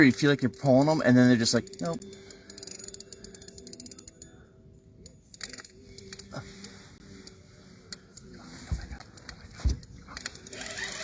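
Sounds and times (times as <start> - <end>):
fishing reel clicking: 0.6 - 4.4, 10.2 - 11.0.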